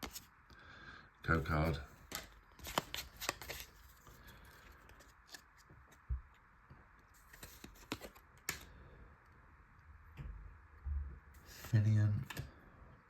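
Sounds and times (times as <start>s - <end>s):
cards being handled: 0.0s - 0.3s, 1.6s - 6.4s, 7.1s - 8.7s.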